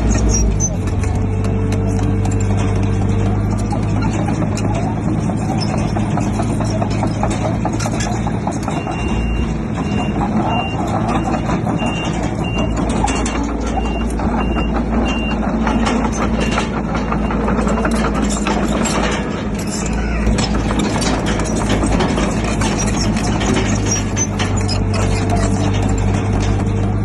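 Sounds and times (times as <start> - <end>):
diesel engine running hard: 0.0 - 27.0
knocks and clatter: 0.0 - 27.0
reversing alarm beeping: 8.7 - 18.1.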